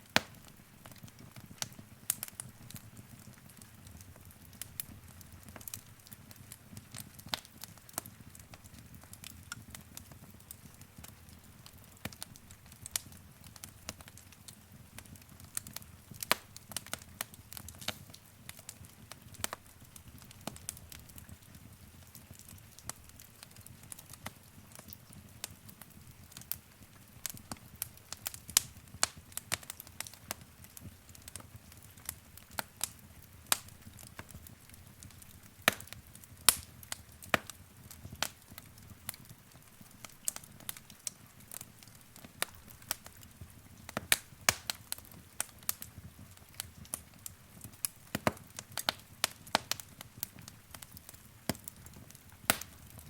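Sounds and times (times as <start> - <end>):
crackles and pops of burning logs: 0.0 - 53.0
low rumble of flames: 12.0 - 53.0.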